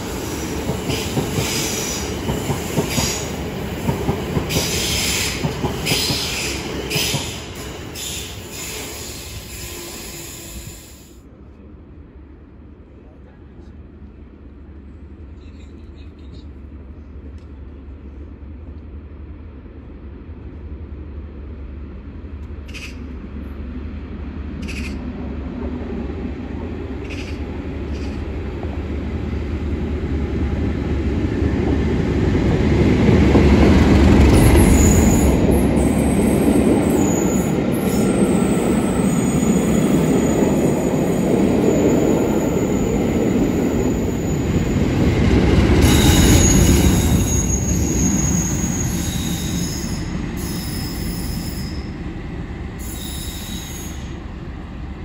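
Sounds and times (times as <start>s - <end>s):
diesel train passing: 0.0s - 55.0s
high wheel squeals: 45.8s - 52.0s, 52.8s - 54.2s.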